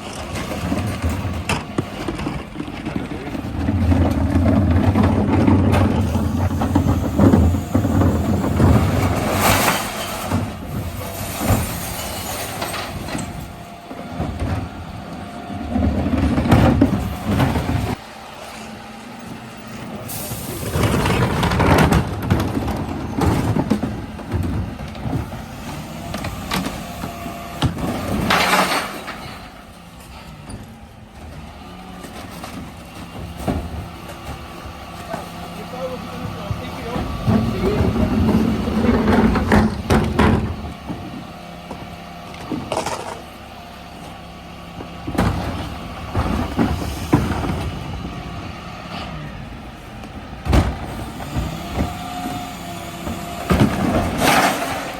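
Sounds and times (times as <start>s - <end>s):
refuse truck engine rumble: 0.0s - 54.9s
clattering bursts: 20.1s - 43.3s.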